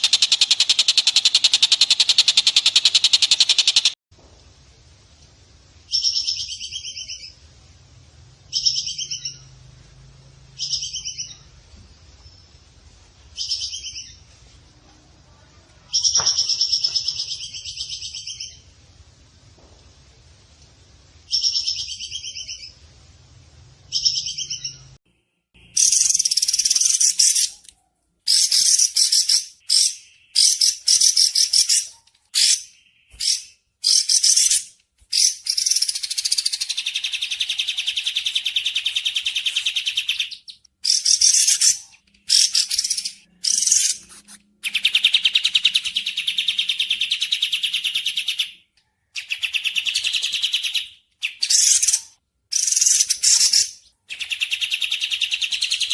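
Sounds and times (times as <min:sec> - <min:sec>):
songbird trilling: 0:00.0 - 0:04.0.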